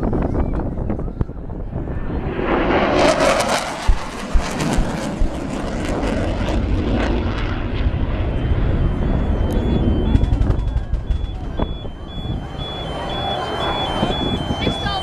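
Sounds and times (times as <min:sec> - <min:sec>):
jet aircraft passing low: 0:01.0 - 0:15.0
sharp thumps: 0:03.8 - 0:05.9, 0:09.6 - 0:12.2.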